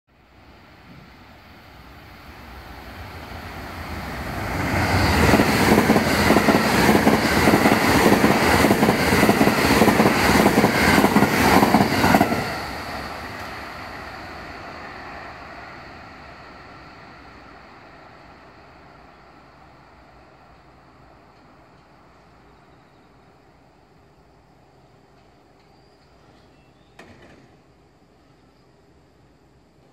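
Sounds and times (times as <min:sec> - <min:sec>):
electric train passing: 0:00.2 - 0:26.3
wheels clacking on rails: 0:04.5 - 0:13.5.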